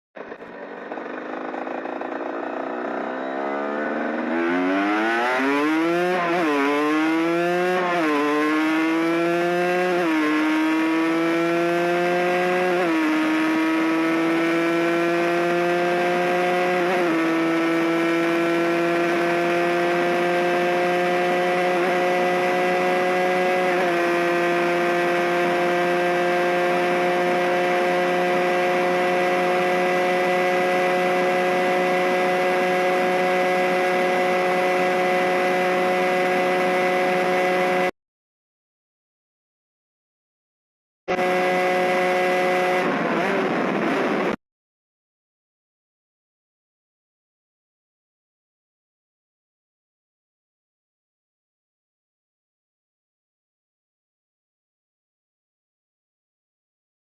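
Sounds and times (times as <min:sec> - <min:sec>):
two-stroke engine accelerating: 0:00.2 - 0:37.9, 0:41.1 - 0:44.4.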